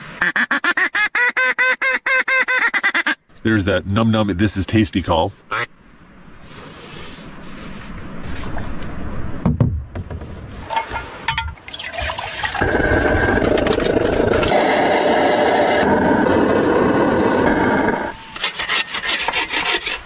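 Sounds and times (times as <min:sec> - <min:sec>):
running water rushing: 0:11.2 - 0:14.8.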